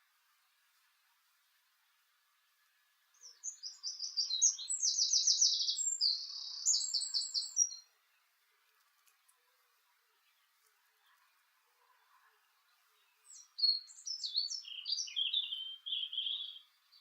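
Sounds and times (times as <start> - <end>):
songbird singing trills: 3.1 - 8.3, 12.0 - 17.0.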